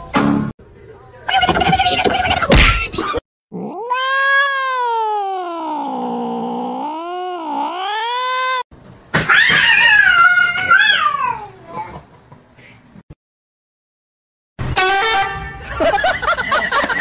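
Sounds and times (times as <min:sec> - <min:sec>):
another cat wailing: 0:03.5 - 0:08.6
cat yowling: 0:03.5 - 0:08.6.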